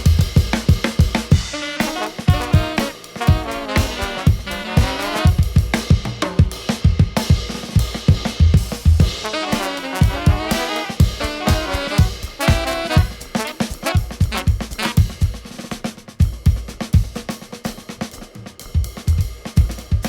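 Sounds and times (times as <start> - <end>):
drum kit: 0.0 - 20.0
saxophone and brass horn lines: 1.3 - 5.9, 9.0 - 15.5
bass: 7.8 - 9.1.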